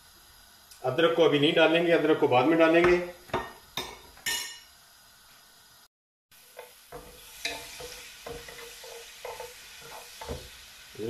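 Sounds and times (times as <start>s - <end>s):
garlic sizzling in hot oil: 0.0s - 11.0s
wooden spoon stirring and scraping: 6.5s - 10.6s.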